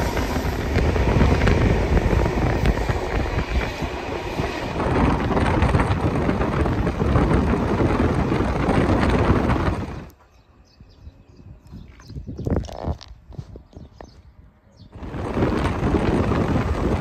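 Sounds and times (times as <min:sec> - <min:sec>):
train wheels rumbling on rails: 0:00.0 - 0:10.2, 0:14.9 - 0:17.0.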